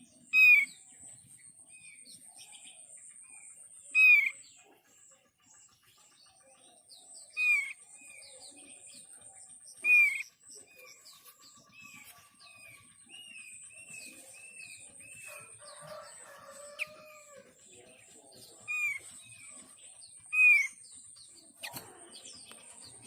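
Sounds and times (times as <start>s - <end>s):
bird calls: 0.0s - 23.0s
soft bird chirps: 0.0s - 23.0s.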